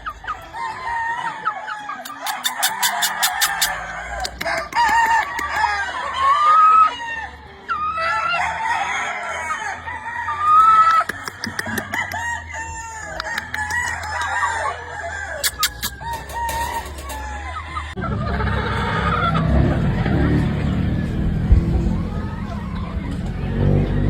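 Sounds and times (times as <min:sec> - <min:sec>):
hens clucking: 0:00.0 - 0:20.7
roosters crowing: 0:00.0 - 0:24.0
sharp clicks: 0:02.1 - 0:05.5, 0:10.9 - 0:12.0, 0:13.2 - 0:14.3, 0:15.4 - 0:16.0.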